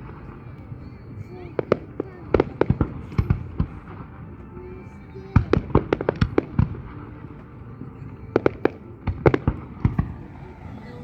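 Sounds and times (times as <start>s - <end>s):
fireworks bangs and cracks: 8.4s - 11.0s.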